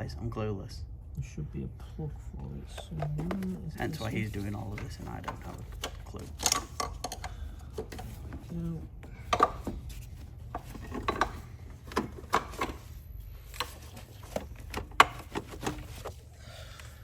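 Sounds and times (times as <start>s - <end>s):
steady low hum: 0.0s - 17.0s
clicks and knocks of tools: 4.7s - 8.2s.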